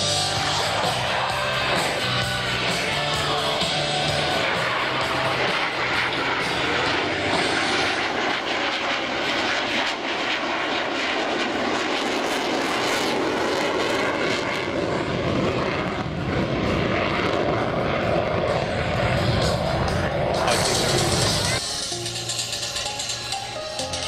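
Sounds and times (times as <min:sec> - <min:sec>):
airplane engine running: 0:00.0 - 0:24.0.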